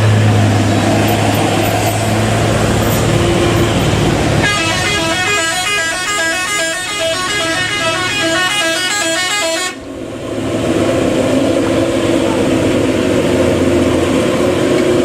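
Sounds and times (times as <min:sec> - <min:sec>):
truck engine humming: 0:00.0 - 0:15.0
musical truck horn: 0:02.9 - 0:09.8.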